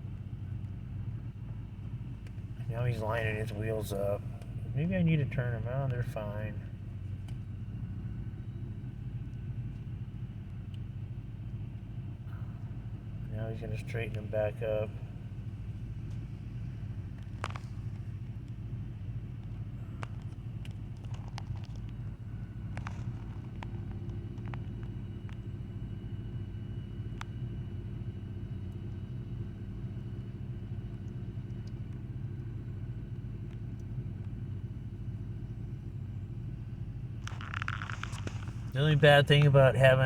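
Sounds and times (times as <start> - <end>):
truck engine idling: 0.0 - 40.0
faint clicks: 19.4 - 25.6.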